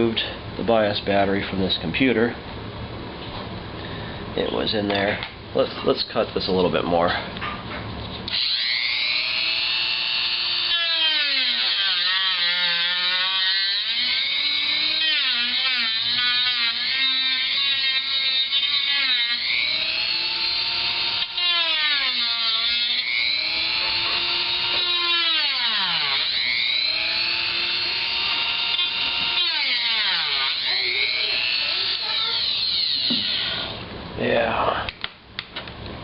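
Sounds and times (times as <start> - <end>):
rotary tool cutting plastic: 8.3 - 33.7.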